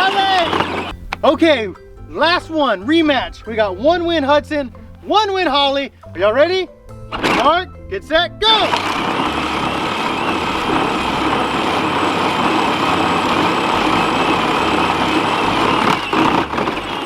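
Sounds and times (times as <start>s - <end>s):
toy tractor motor whine: 0.0s - 1.0s, 7.1s - 7.5s, 8.5s - 17.0s.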